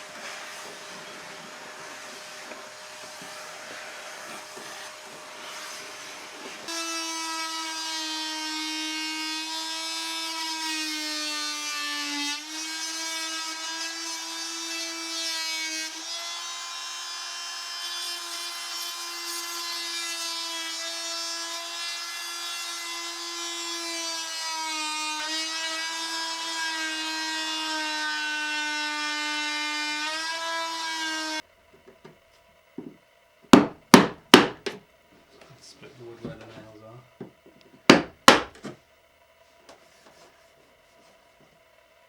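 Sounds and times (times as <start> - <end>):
circular saw cutting wood: 0.0 - 31.5.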